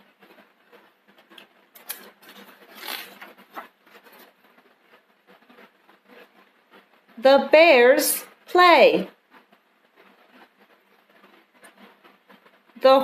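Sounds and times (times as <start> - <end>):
paper page turning rustle: 1.2 - 4.6.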